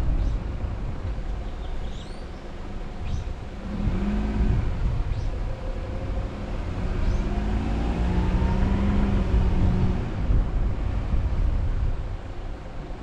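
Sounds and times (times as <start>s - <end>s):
road rumble: 0.0s - 13.0s
car engine accelerating: 3.1s - 11.2s.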